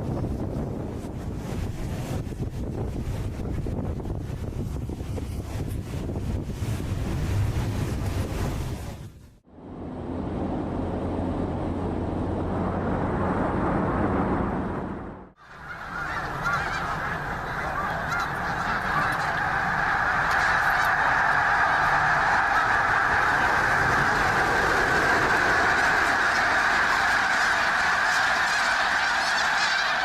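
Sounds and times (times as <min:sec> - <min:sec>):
flock of birds honking: 0:15.4 - 0:30.0.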